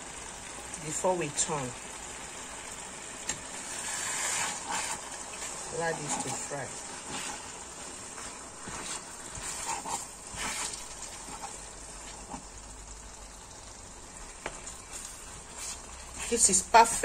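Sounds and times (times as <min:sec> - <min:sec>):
sauce sizzling in oil: 0:00.0 - 0:17.0
spatula scraping a pan: 0:03.6 - 0:12.5.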